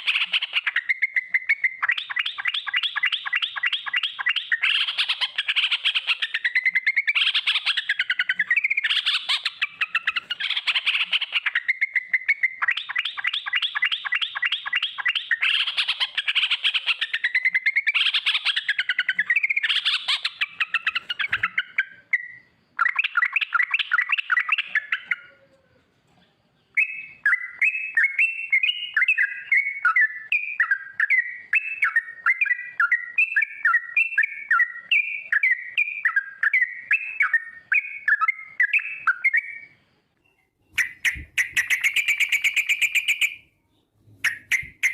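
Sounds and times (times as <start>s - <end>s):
bird singing rolling trills: 0.0s - 44.9s.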